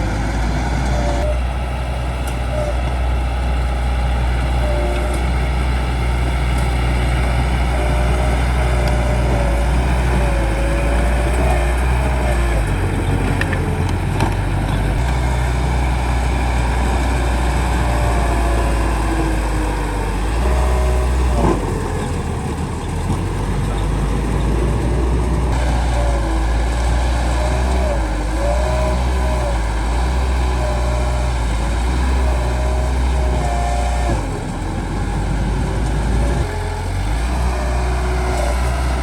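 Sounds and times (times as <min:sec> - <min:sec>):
bulldozer diesel engine: 0:00.0 - 0:39.0.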